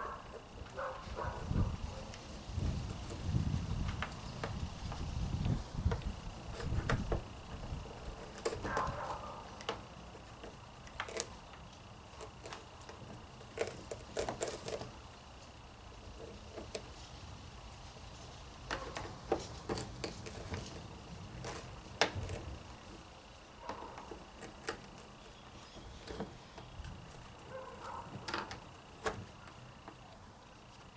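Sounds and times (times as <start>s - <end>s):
plastic parts clicking and rustling: 18.6s - 30.0s.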